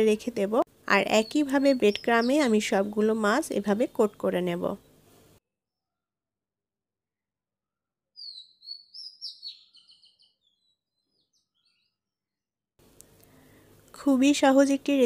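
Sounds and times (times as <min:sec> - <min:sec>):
small bird twittering: 0:01.2 - 0:02.5, 0:08.2 - 0:11.9.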